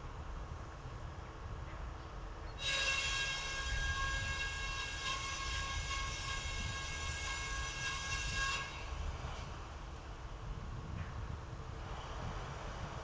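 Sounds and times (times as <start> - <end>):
train horn long steady note: 2.6 - 9.2.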